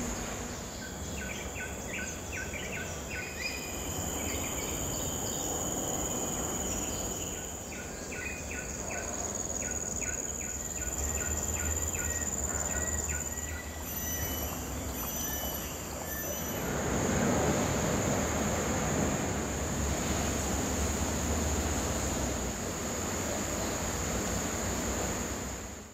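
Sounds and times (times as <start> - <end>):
insects whining: 0.0 - 25.9
broad rushing noise: 15.5 - 25.9.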